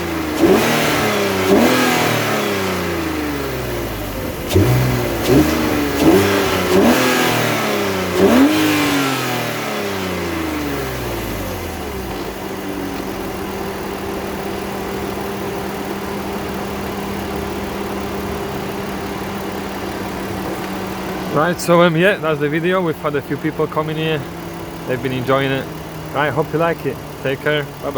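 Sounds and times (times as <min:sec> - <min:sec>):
car engine idling: 0:00.0 - 0:27.9
car engine revving: 0:00.0 - 0:27.9.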